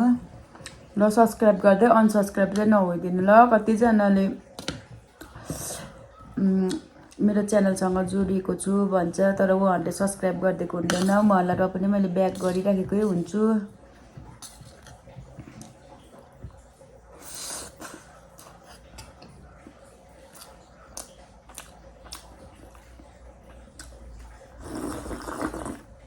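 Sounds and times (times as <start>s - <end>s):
person chewing with wet mouth clicks: 17.2s - 25.8s.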